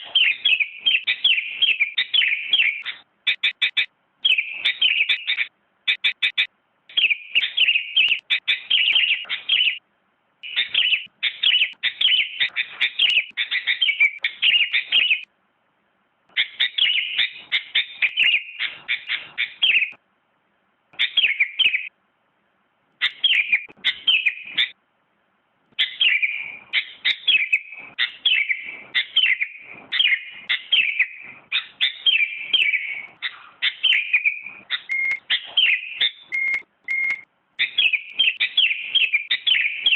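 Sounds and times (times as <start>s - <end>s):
bulbul chirping song: 0.0s - 9.8s, 10.4s - 15.3s, 16.3s - 20.0s, 21.0s - 22.0s, 23.0s - 24.8s, 25.7s - 39.9s.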